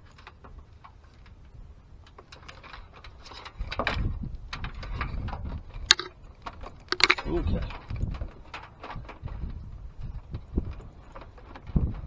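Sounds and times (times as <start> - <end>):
sharp click: 5.9 - 6.1, 6.9 - 7.2.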